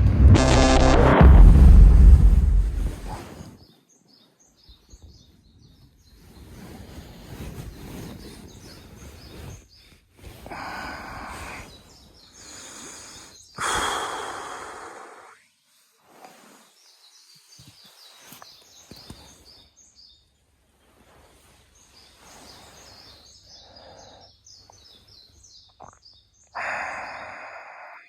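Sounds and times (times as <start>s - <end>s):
rustling noise: 0.0s - 3.6s, 5.7s - 10.5s, 15.6s - 19.7s, 20.6s - 23.4s
small birds chirping: 3.4s - 15.4s, 16.6s - 20.8s, 21.5s - 28.0s.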